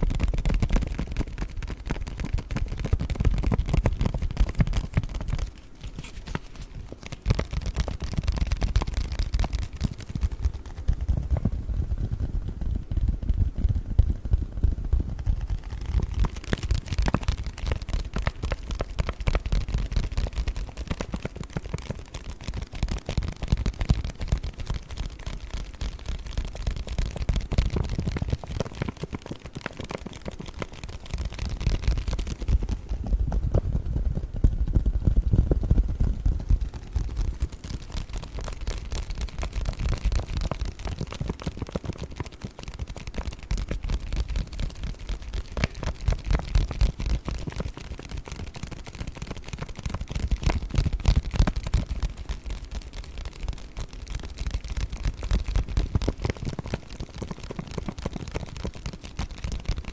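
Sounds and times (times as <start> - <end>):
paper bag crinkling: 5.4 - 7.2.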